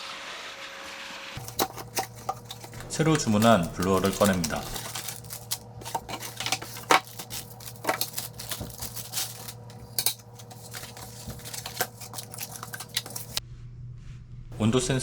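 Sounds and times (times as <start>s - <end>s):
packaging rustling and tearing: 1.4s - 13.4s
steady low hum: 1.4s - 15.0s.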